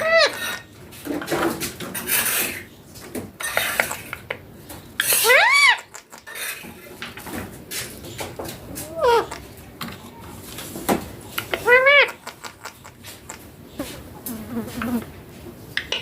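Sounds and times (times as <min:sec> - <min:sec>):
parakeet call: 0:11.6 - 0:12.9.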